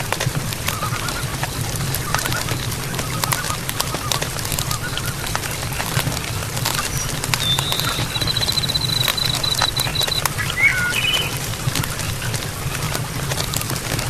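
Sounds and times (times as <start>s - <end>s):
small clicks and ticks: 0.0s - 14.0s
faint warbling animal calls: 6.7s - 12.5s.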